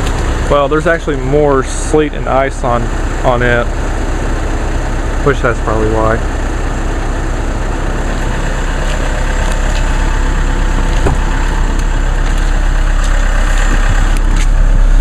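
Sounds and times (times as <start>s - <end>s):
diesel car engine idling: 0.0s - 15.0s
light engine knocks: 10.9s - 11.3s.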